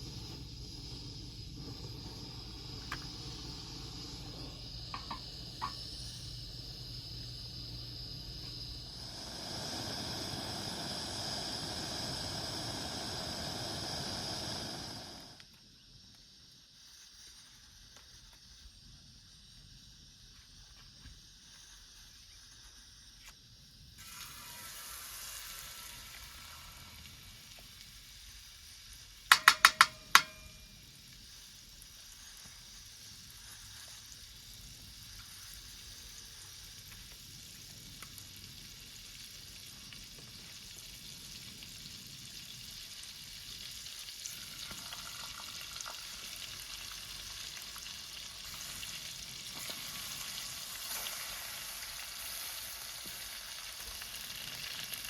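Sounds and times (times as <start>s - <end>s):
food sizzling in a pan: 0.0s - 18.6s, 23.9s - 55.0s
metallic taps: 5.0s - 5.8s, 29.3s - 30.5s.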